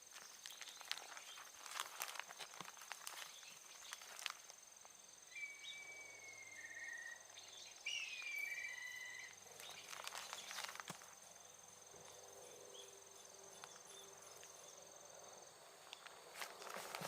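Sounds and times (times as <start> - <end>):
light clicks and crackles: 0.0 - 4.6, 9.6 - 11.2
faint steady high tone: 5.3 - 9.4
drawn-out whistling calls: 5.3 - 11.4.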